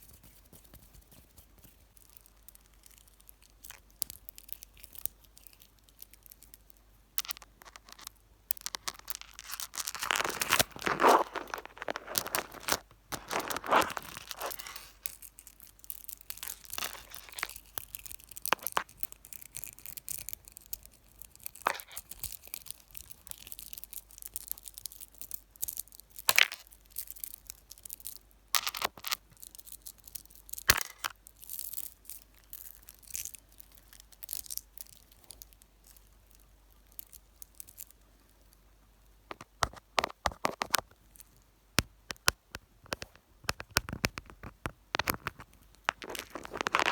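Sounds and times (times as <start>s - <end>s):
fingers tapping and rubbing microphone: 39.3s - 41.0s, 41.8s - 46.9s.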